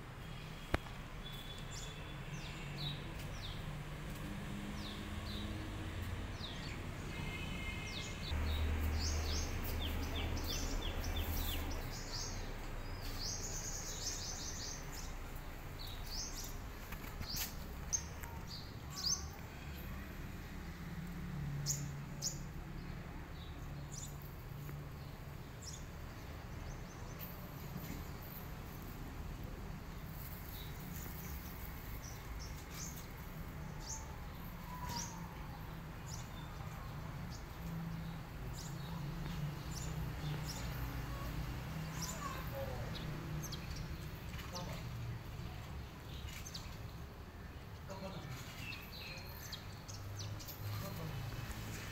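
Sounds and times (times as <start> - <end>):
small birds chirping: 0.1 - 20.2, 21.0 - 51.9.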